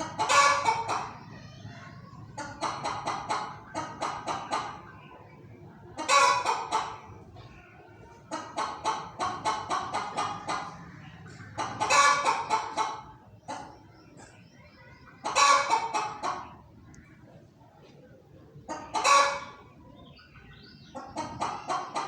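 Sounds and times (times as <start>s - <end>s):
harsh hen calls: 0.0s - 1.3s, 5.9s - 7.1s, 8.3s - 13.7s, 15.2s - 16.5s, 18.7s - 19.7s
hen clucking: 0.0s - 22.0s.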